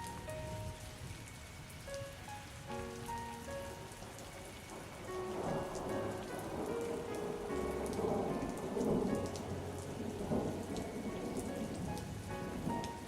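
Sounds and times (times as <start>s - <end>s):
faint soft music: 0.0s - 13.0s
rain falling: 0.0s - 13.0s
thunder rumbling: 3.6s - 13.0s.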